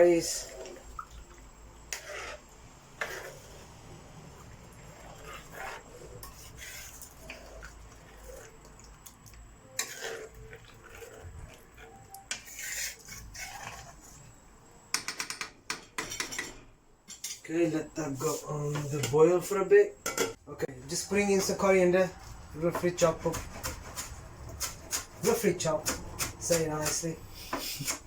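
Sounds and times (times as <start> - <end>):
kitchen scrapes and rubs: 1.9 - 8.6, 9.7 - 14.3, 18.1 - 19.2.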